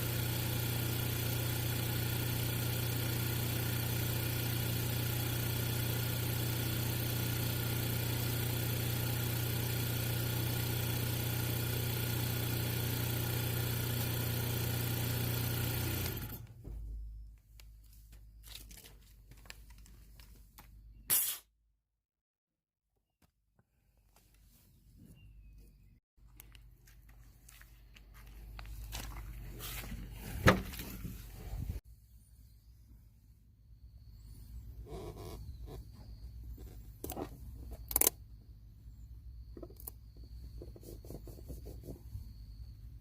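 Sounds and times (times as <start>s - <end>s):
motor humming: 14.0s - 16.6s.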